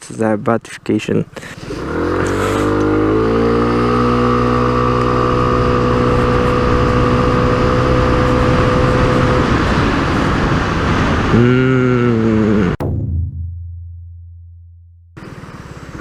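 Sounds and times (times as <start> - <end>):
scooter engine at full throttle: 1.5 - 10.1.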